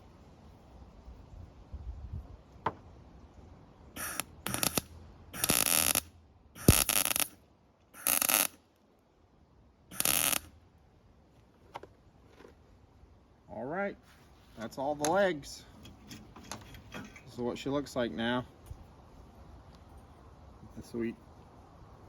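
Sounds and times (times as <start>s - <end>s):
welder crackling sizzle: 4.0s - 6.0s, 6.6s - 7.4s, 8.0s - 8.6s, 9.9s - 10.5s.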